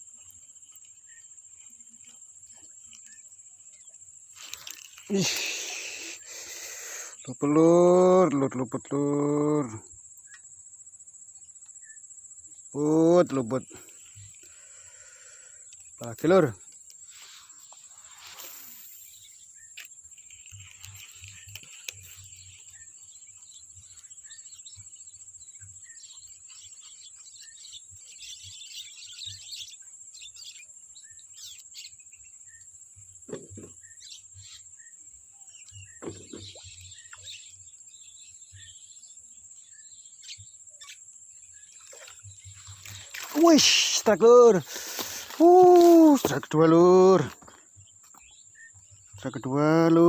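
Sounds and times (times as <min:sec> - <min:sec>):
bird chirps: 0:16.9 - 0:50.0.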